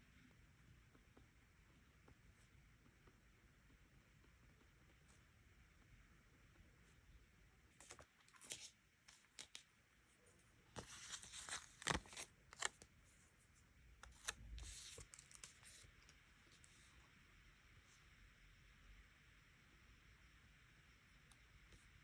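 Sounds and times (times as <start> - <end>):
paper rustling: 7.8 - 9.6, 10.8 - 12.8, 14.0 - 15.9.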